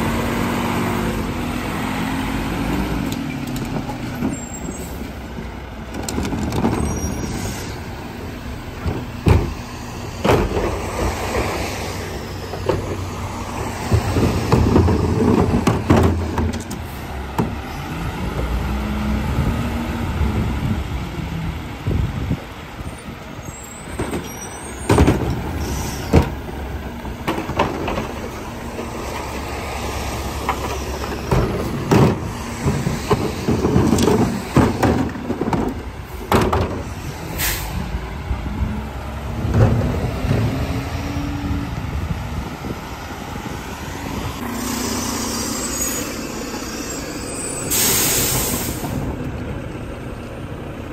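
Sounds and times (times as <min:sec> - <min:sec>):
garbage truck engine running: 0:08.0 - 0:50.9
metal bins banging: 0:13.9 - 0:16.6, 0:31.2 - 0:36.9.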